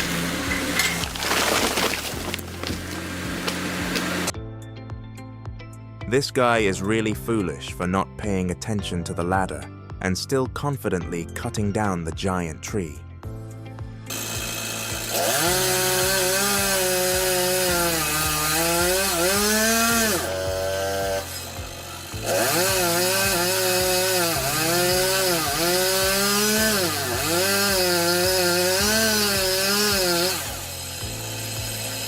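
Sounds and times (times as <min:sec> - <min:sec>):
chainsaw cutting wood: 0:00.0 - 0:04.4, 0:14.1 - 0:32.0.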